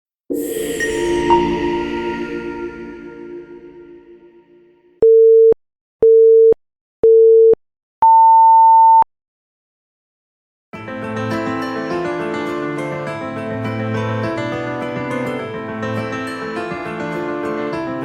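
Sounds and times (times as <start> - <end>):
music: 0.3 - 5.0, 10.8 - 18.0.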